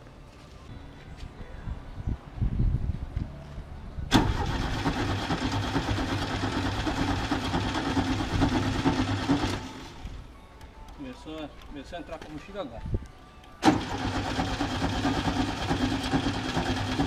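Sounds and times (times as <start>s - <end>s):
car engine cranking on starter: 4.1s - 10.1s, 13.6s - 17.0s.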